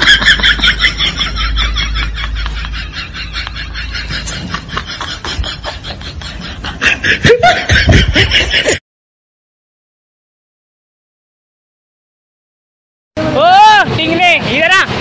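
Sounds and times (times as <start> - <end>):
person laughing: 0.0 - 8.8.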